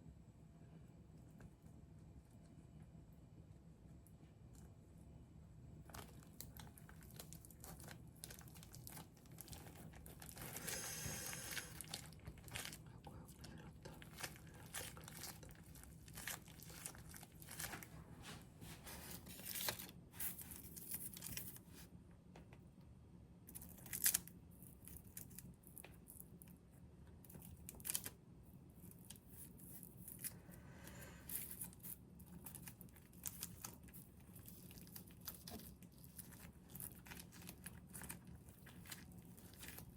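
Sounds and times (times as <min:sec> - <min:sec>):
packaging crinkling and tearing: 0:05.9 - 0:17.9, 0:31.3 - 0:39.9.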